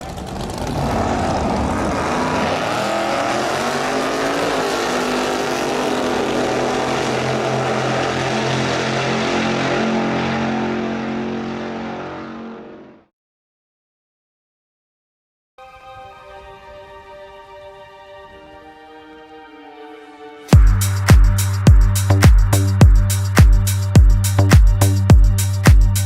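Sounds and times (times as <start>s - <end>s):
loud engine running: 0.0s - 13.1s, 20.5s - 26.0s.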